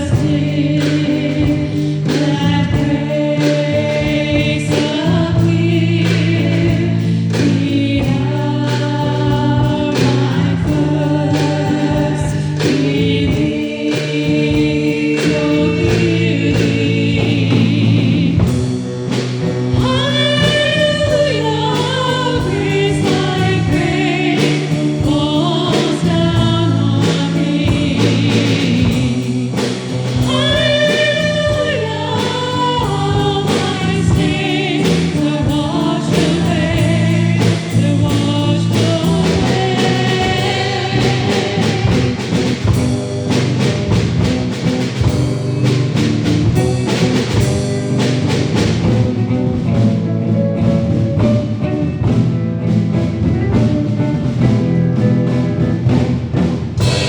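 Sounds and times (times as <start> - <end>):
choir singing: 0.0 - 45.0
held accompaniment chords: 0.0 - 57.0.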